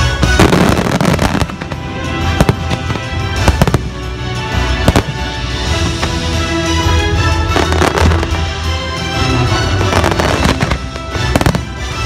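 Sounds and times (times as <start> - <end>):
fireworks bursting: 0.0 - 6.4, 9.7 - 12.0
music on loudspeakers: 0.0 - 12.0.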